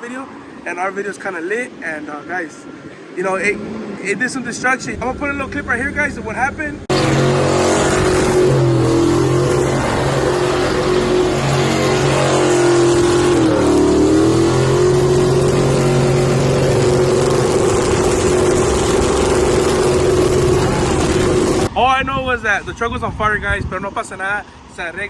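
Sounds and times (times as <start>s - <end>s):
loud rushing noise: 2.6s - 22.4s
truck engine revving high: 3.3s - 21.8s.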